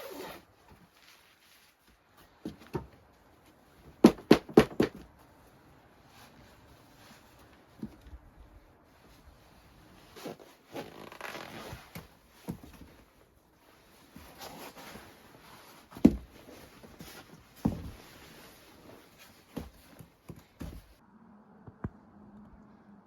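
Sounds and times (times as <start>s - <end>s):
gear rustling and handling: 0.0s - 3.6s, 8.9s - 21.0s.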